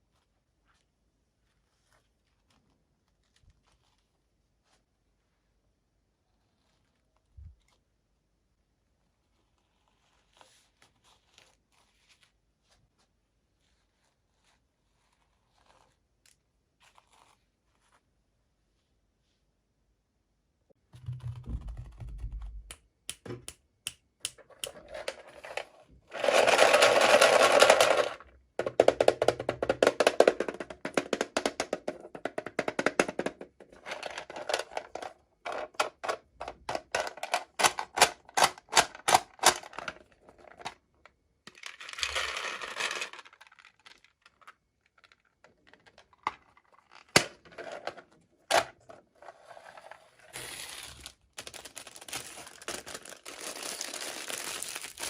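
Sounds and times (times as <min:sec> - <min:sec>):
toy pieces clicking and tapping: 0:26.2 - 0:39.8
packaging crinkling and tearing: 0:50.4 - 0:55.0.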